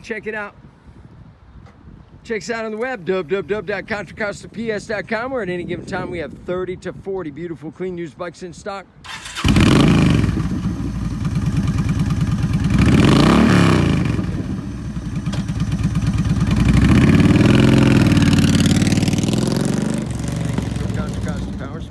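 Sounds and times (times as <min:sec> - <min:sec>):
motorcycle engine running loud: 0:09.4 - 0:21.8.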